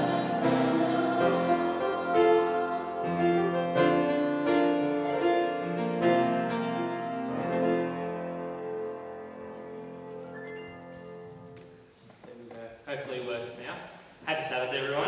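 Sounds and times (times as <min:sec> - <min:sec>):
piano notes and chords: 0:00.0 - 0:11.9.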